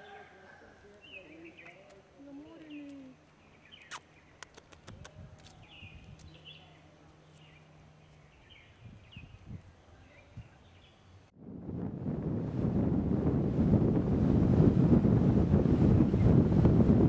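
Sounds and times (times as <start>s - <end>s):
faint birds chirping: 0.0s - 11.4s
sharp clicks: 3.8s - 5.6s.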